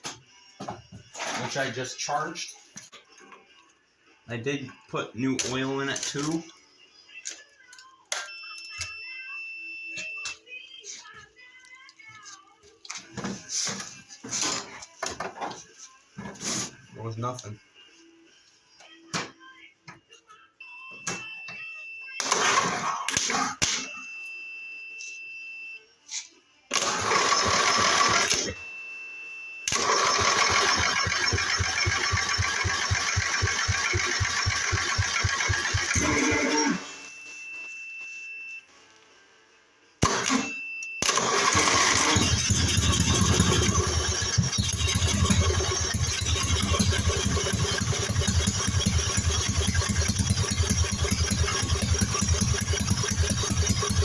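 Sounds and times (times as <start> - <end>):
engine cranking by electric starter: 26.7 - 28.6, 29.7 - 36.5, 40.0 - 54.0.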